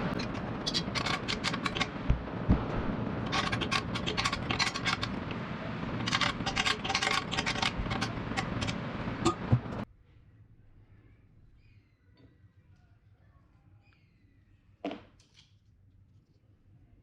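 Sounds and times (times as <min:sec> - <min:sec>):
metal parts clicking and scraping: 0:00.0 - 0:02.1, 0:03.2 - 0:09.8.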